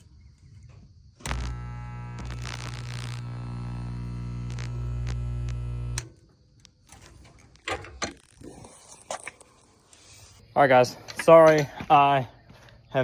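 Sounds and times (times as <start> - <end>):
spot welder humming: 1.2 - 6.2.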